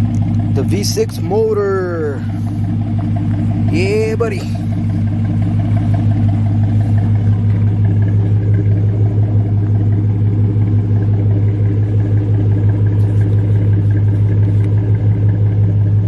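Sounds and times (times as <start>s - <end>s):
pickup engine droning: 0.0s - 16.0s.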